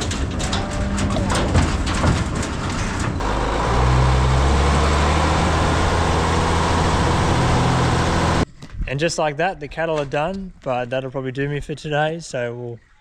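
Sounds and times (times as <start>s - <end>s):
clatter of short knocks: 0.0s - 3.2s
diesel truck engine under load: 0.0s - 8.4s.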